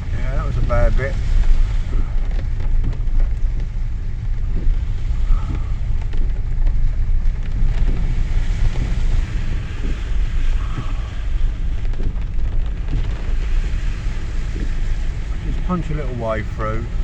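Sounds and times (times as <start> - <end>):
van engine rumble: 0.0 - 17.0
water sloshing from tyres: 0.0 - 17.0.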